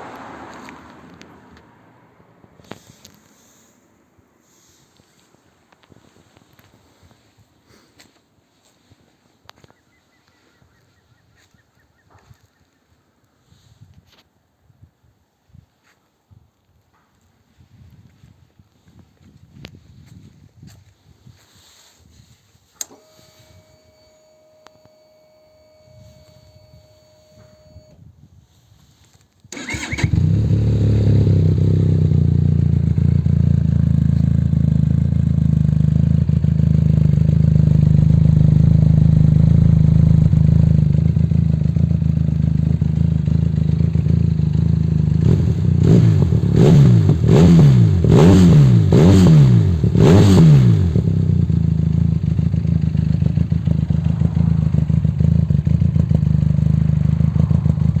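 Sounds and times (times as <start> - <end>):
motorcycle engine starting: 22.7 - 24.5, 25.1 - 28.0, 29.5 - 58.0
engine throttle blips: 22.8 - 28.0, 29.5 - 58.0
motorcycle engine idling: 29.6 - 58.0.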